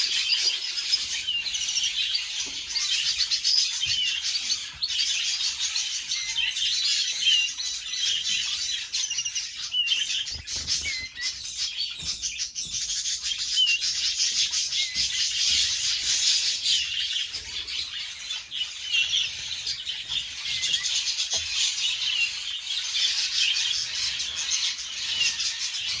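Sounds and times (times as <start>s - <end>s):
canaries chirping and twittering: 0.0s - 26.0s.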